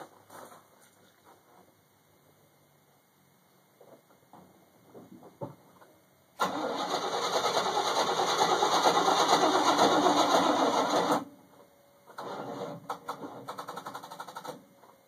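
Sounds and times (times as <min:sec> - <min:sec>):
truck engine starter cranking: 0:06.4 - 0:11.3, 0:12.1 - 0:14.5.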